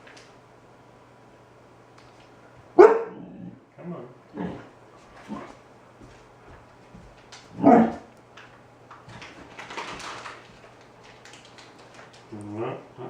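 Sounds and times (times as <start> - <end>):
puppy barking: 2.8 - 3.4, 7.6 - 8.1.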